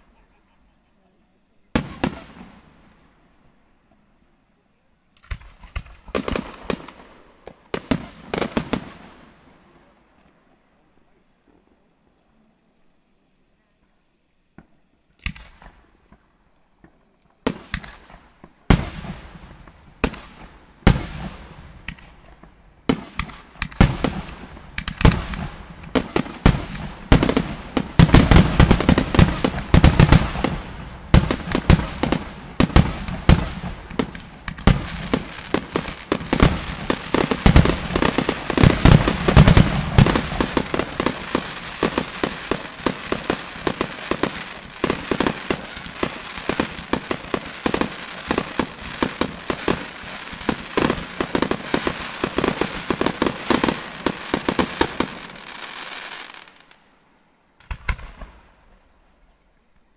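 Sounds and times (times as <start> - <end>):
fireworks bangs: 1.7 - 3.2, 5.2 - 9.9, 14.5 - 56.8, 57.6 - 59.1
fireworks crackling: 1.7 - 4.0, 5.1 - 10.7, 14.5 - 59.4.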